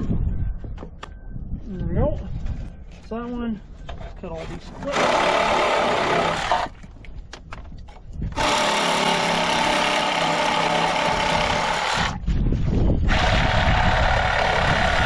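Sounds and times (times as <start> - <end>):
power tool whining: 4.9 - 6.8, 8.3 - 12.2, 13.1 - 15.0.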